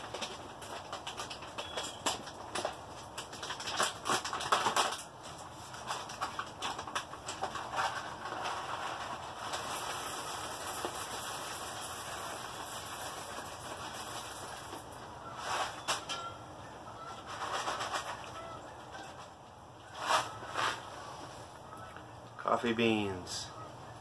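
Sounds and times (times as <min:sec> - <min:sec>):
plastic bag crinkling: 0:00.0 - 0:15.0
coffee beans clicking: 0:09.1 - 0:14.9.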